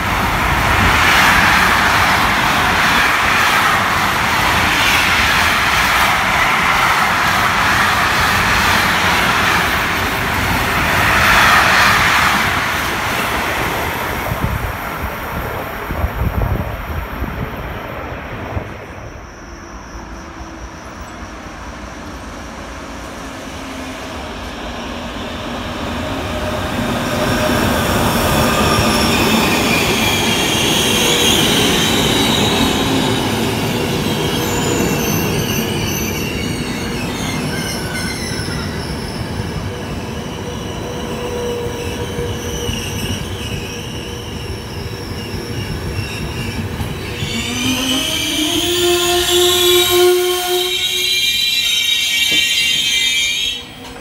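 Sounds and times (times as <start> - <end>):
train coaches rumbling: 0.0 - 54.0
wavering wheel squeal: 33.7 - 54.0.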